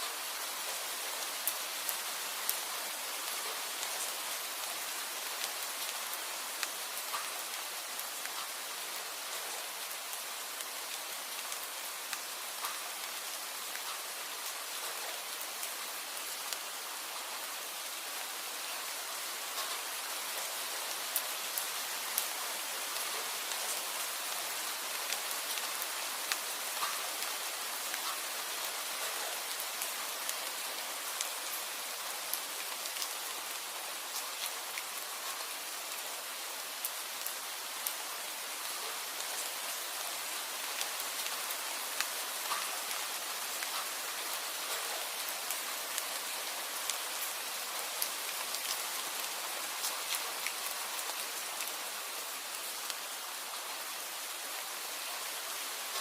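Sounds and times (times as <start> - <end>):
steady rain: 0.0 - 56.0
raindrops tapping on a surface: 6.6 - 7.4, 12.1 - 12.9, 19.5 - 19.9, 26.3 - 27.3, 27.9 - 28.3, 42.0 - 43.0.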